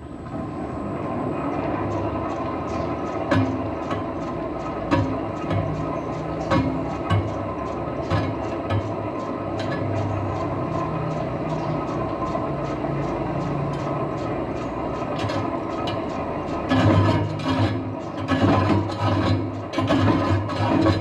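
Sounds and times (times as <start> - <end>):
metal lathe humming: 0.0 - 21.0.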